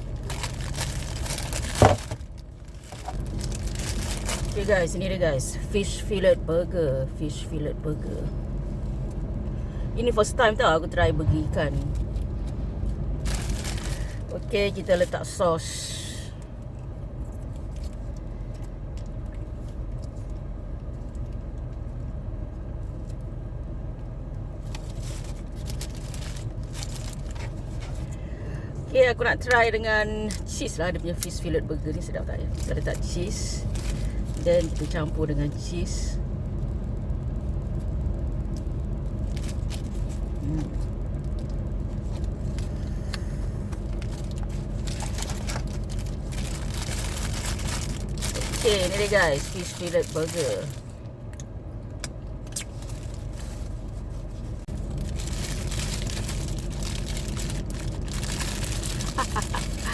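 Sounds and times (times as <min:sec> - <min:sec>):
food wrapper rustling: 0:00.0 - 0:04.7, 0:12.0 - 0:14.3, 0:24.6 - 0:28.0, 0:32.5 - 0:35.2, 0:38.5 - 0:42.8, 0:43.8 - 0:51.0, 0:52.5 - 0:59.9
low background rumble: 0:00.0 - 0:59.9
rustles: 0:52.4 - 0:59.9.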